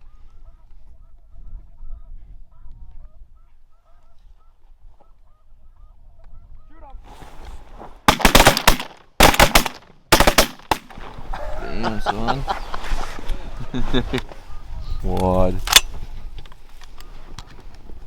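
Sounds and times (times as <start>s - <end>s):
shotgun blasts: 8.1s - 11.1s.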